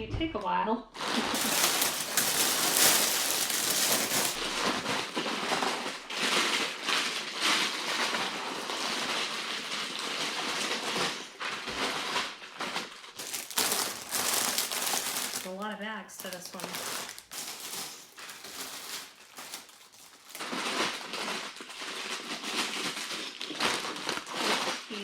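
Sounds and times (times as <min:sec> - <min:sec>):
plastic bags rustling: 0:01.0 - 0:25.0.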